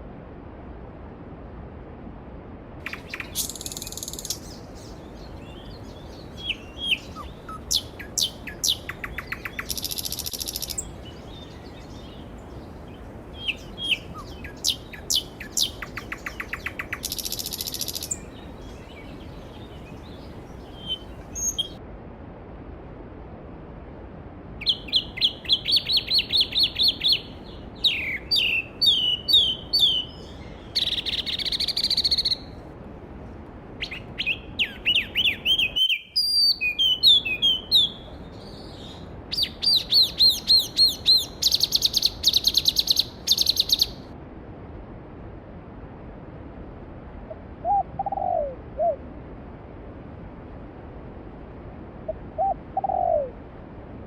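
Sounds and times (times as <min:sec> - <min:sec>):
songbirds singing: 0:02.8 - 0:21.8, 0:24.6 - 0:32.6, 0:33.8 - 0:44.1
stream rushing: 0:24.4 - 0:43.4.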